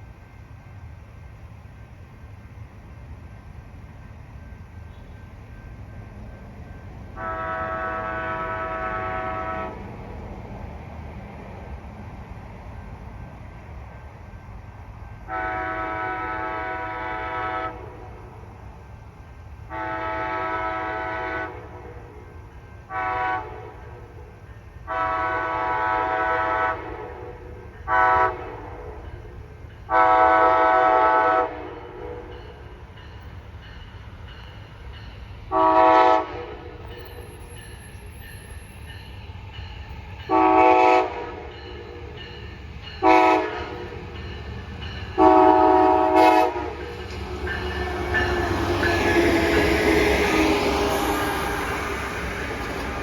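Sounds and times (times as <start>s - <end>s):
train horn blasts: 4.8s - 5.3s, 7.0s - 10.0s, 15.2s - 18.4s, 19.6s - 29.2s, 29.9s - 32.6s, 35.5s - 37.5s, 40.2s - 42.2s, 42.9s - 53.0s.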